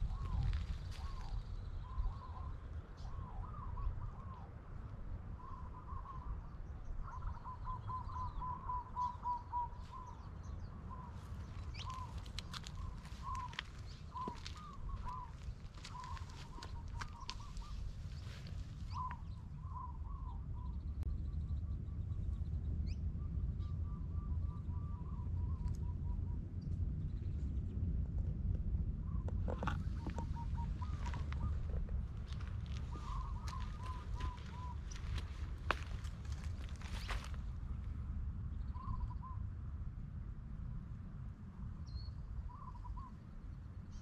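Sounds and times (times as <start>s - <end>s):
steady low rumble: 0.0s - 44.0s.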